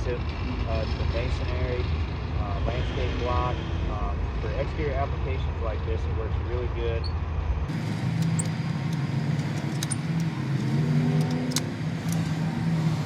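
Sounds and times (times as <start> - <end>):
vehicle engine running: 0.0 - 13.0
sharp clicks: 8.1 - 12.4.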